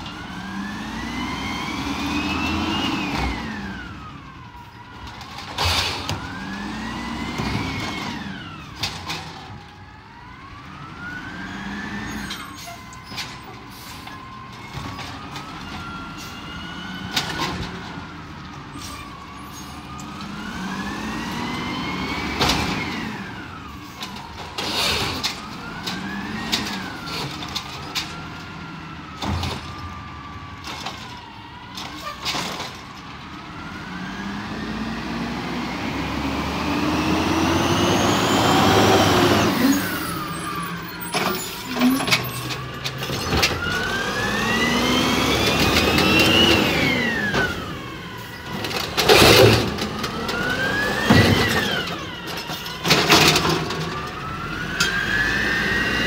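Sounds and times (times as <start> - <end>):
truck engine revving: 0.1 - 4.4, 5.6 - 8.7, 19.9 - 23.7, 33.4 - 56.0
knocks and bangs of cart: 48.6 - 54.0.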